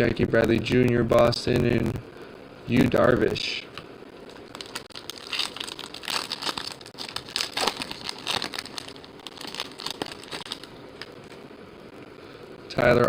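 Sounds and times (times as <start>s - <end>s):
wrapper crinkling: 4.2s - 11.3s.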